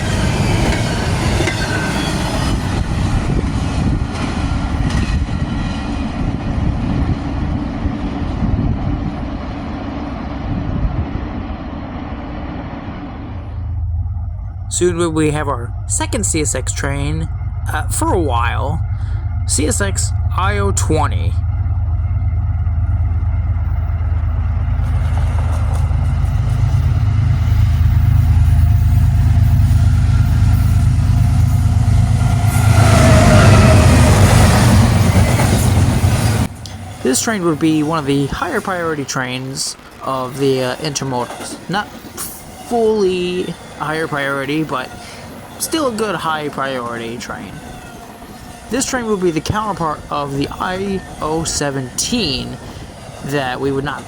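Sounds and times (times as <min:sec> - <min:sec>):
train wheel clacks: 0:00.0 - 0:10.0, 0:14.6 - 0:54.0
diesel locomotive engine drone: 0:00.0 - 0:54.0
freight train rumbling past: 0:00.0 - 0:54.0.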